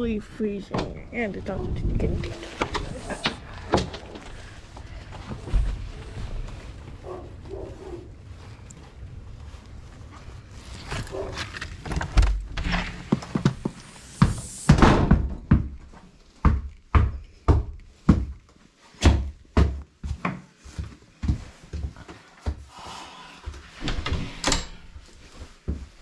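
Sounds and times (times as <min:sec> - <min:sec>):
rustling: 0:01.9 - 0:14.6, 0:23.4 - 0:26.0.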